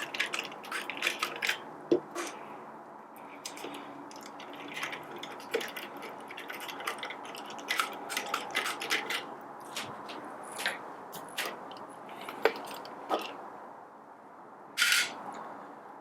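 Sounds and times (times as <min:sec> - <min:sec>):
screwdriver clicking and scraping: 0:00.0 - 0:02.4, 0:03.4 - 0:13.4, 0:14.8 - 0:15.2.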